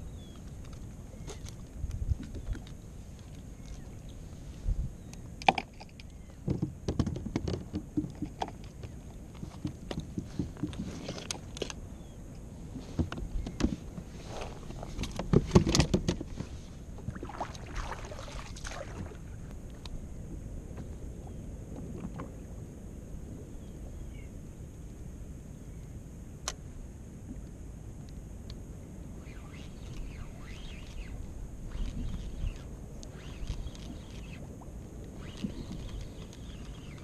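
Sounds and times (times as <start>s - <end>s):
water sloshing against hull: 5.5s - 22.6s, 29.3s - 37.0s.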